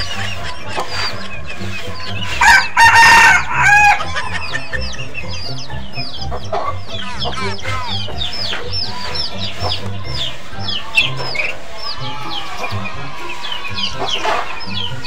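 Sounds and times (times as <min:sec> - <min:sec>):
chicks peeping: 0:00.0 - 0:15.0
rooster crowing: 0:02.4 - 0:04.4.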